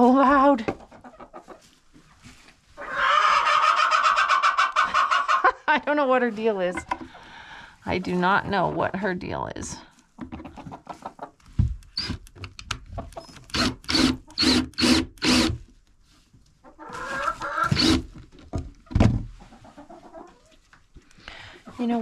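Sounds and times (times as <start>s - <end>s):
hen clucking and squawking: 0.7s - 1.8s, 2.8s - 5.6s, 10.4s - 11.4s, 16.6s - 18.0s, 19.4s - 20.7s.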